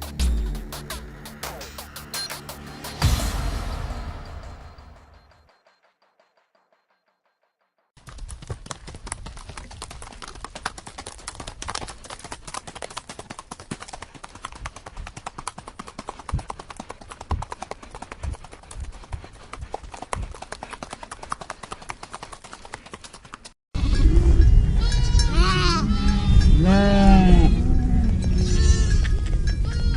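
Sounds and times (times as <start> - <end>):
horse hooves clip-clopping: 8.0 - 23.6.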